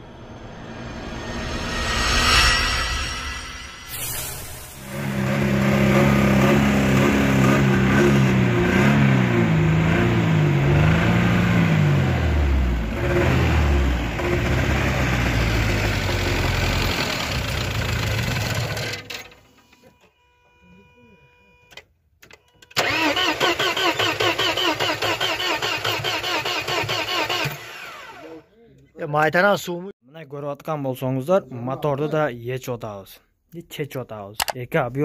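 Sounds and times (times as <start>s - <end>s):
car engine revving with knock: 4.9s - 19.0s.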